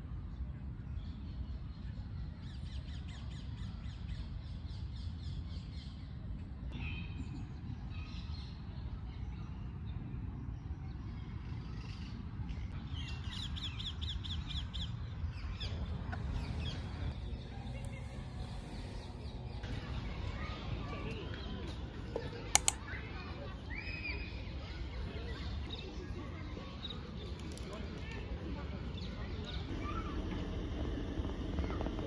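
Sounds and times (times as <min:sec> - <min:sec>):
steady low rumble: 0:14.8 - 0:22.5, 0:29.6 - 0:32.0.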